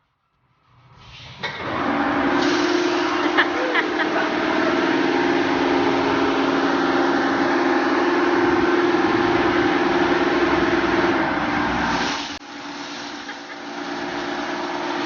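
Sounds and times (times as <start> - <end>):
car wash motor hum: 1.4 - 15.0
hiss of spray: 2.3 - 4.0, 11.7 - 15.0.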